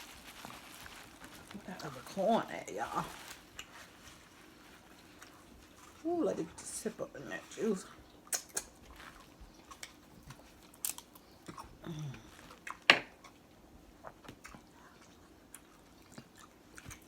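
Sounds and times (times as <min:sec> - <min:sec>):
wet lip smacks: 0:08.3 - 0:08.8.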